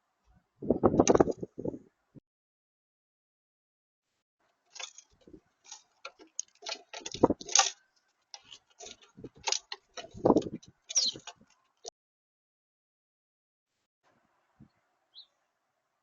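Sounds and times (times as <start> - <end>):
birds pecking and shuffling: 4.4 - 11.9.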